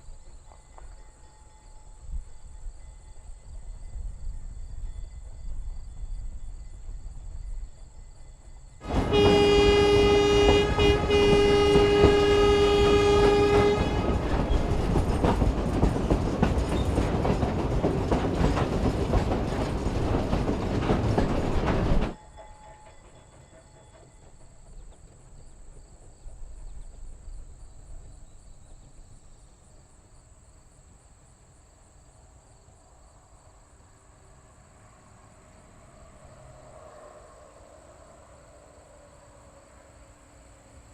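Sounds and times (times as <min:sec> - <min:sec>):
loud rushing train noise: 0:03.6 - 0:27.4, 0:34.1 - 0:40.9
steam locomotive chime whistle: 0:08.8 - 0:15.0, 0:22.1 - 0:24.8.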